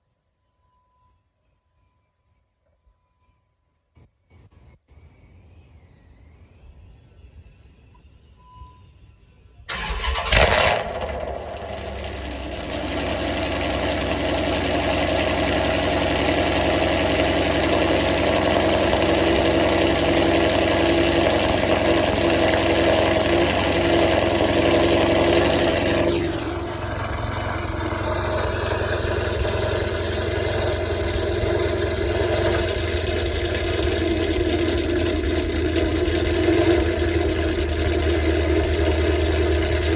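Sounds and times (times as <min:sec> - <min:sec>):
car engine starting and idling: 0:09.7 - 0:39.9.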